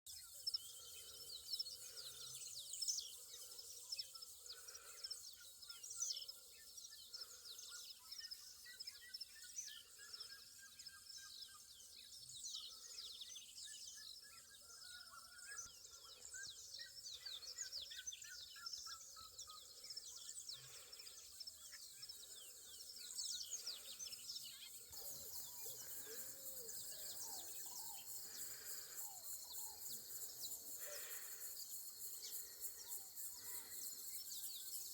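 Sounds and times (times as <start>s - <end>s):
birds chirping and calling: 19.4s - 34.9s
high insect trill: 24.9s - 34.9s.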